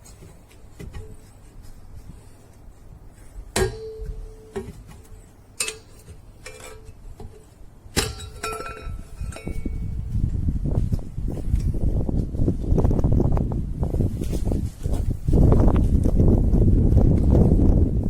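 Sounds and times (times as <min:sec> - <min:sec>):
metal strikes with ringing tone: 0:03.6 - 0:04.7.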